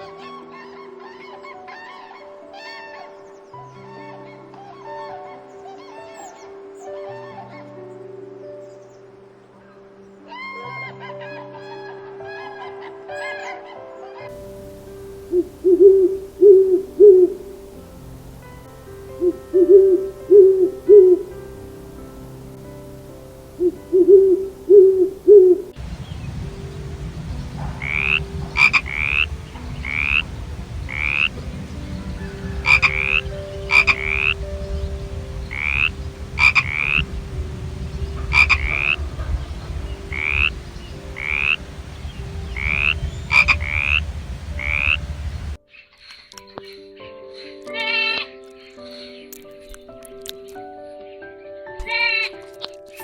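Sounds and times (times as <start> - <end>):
frogs croaking: 0.0 - 46.5
steady background noise: 14.3 - 45.6
frogs chirping: 14.3 - 46.3.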